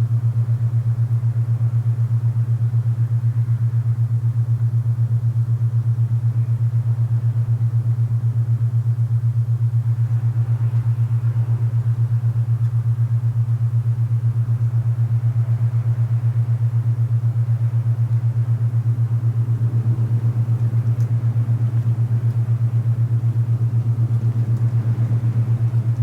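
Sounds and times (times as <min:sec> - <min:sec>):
pulsing low hum tone: 0:00.0 - 0:26.0
soft rush of wind: 0:09.7 - 0:26.0.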